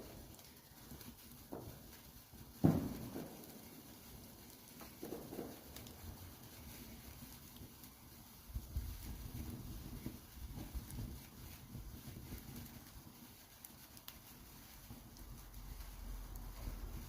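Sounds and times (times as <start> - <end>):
wood fire crackling: 0.0 - 17.0
loud fire pop: 1.4 - 1.9, 2.5 - 3.7, 4.8 - 6.2.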